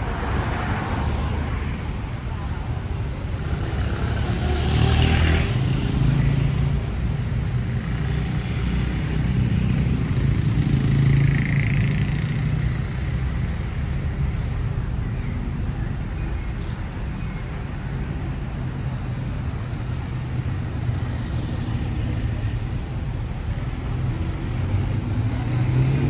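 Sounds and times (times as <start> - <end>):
vehicle engines passing: 0.0 - 26.0.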